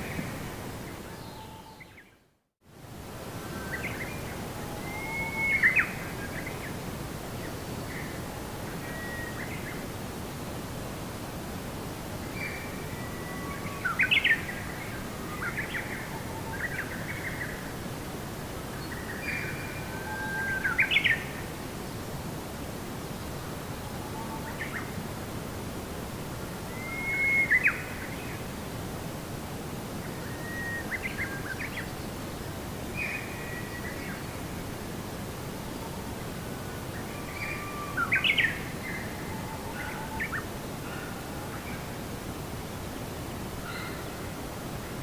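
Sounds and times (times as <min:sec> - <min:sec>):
songbird singing: 0:00.0 - 0:02.3, 0:03.4 - 0:09.9, 0:12.2 - 0:17.8, 0:18.4 - 0:21.5, 0:26.6 - 0:28.5, 0:30.0 - 0:34.7, 0:35.6 - 0:42.0, 0:43.6 - 0:45.0
low background hiss: 0:00.0 - 0:45.0.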